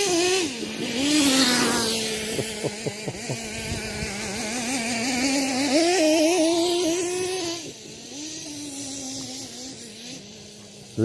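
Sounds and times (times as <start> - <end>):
nitro engine running: 0.0 - 11.0.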